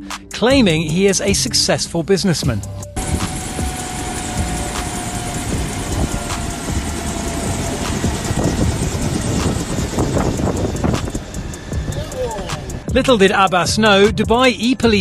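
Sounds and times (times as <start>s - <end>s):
vehicle noise: 2.7s - 13.4s.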